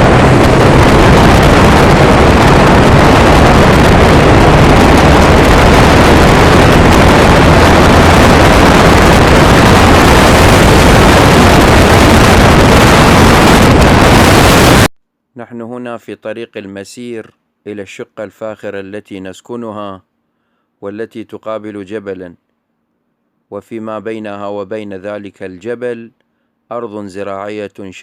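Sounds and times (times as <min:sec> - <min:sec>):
moving vehicle rumble: 0:00.0 - 0:14.7.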